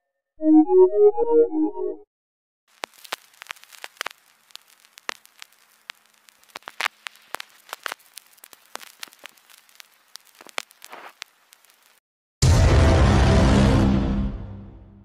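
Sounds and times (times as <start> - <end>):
faint hiss: 2.7 - 12.0
vinyl record pops and clicks: 2.7 - 12.0.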